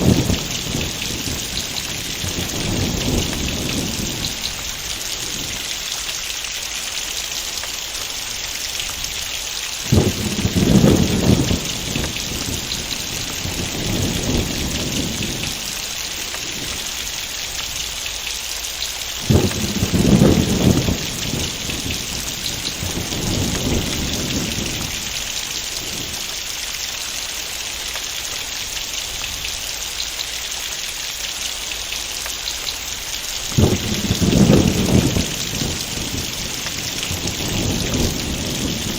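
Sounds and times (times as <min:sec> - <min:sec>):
thunderclap rumbling: 0:00.0 - 0:05.7, 0:09.8 - 0:17.6, 0:19.2 - 0:26.3, 0:33.4 - 0:38.9
heavy rain hissing: 0:00.0 - 0:38.9.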